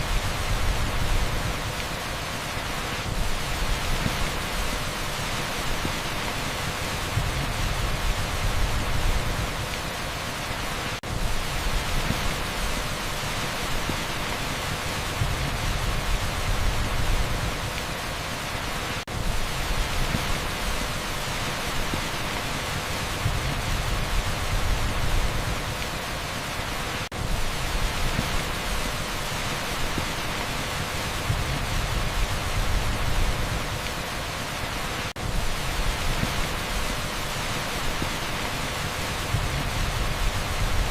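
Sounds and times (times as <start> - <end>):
heavy rain on asphalt: 0.0 - 40.9.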